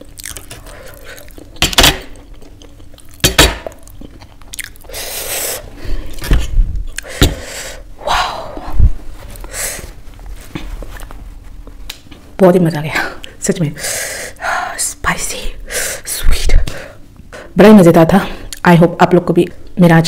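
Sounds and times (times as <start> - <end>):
chewing and lip smacking: 0.0 - 5.0.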